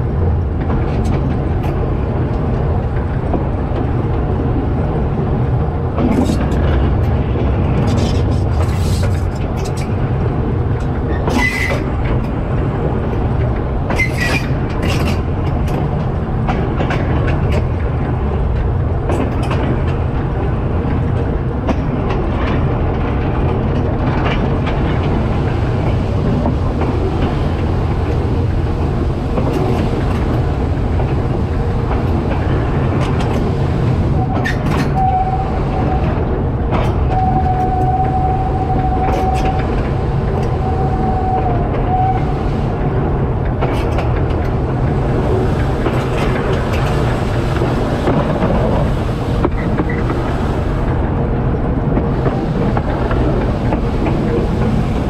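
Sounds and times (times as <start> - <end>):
train rumbling on track: 0.0 - 55.0
wheels clicking over rail joints: 0.0 - 55.0
wheel squeal: 11.1 - 11.8, 14.0 - 14.5.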